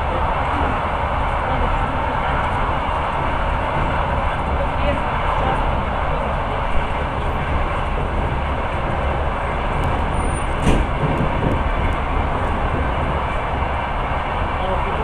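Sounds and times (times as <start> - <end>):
train wheels and air rushing: 0.0 - 15.0
sharp knock: 10.6 - 11.6.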